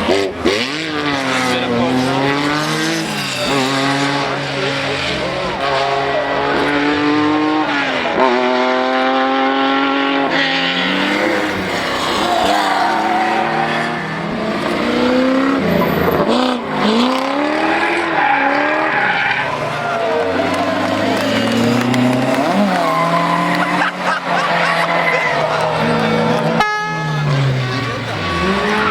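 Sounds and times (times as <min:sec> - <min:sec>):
rally car engine revving: 0:00.0 - 0:28.9
tyre squeal: 0:02.7 - 0:04.1, 0:22.2 - 0:25.6, 0:27.3 - 0:28.9.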